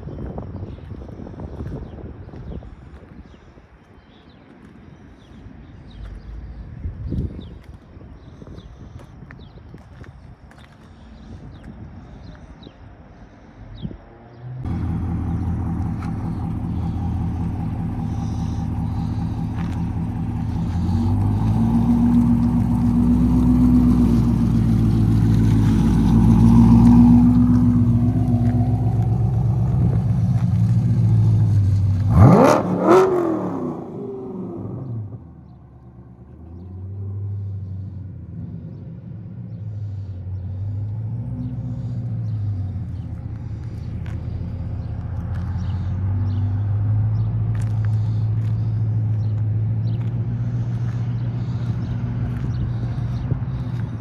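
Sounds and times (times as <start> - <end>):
car engine running and revving: 13.8 - 54.0.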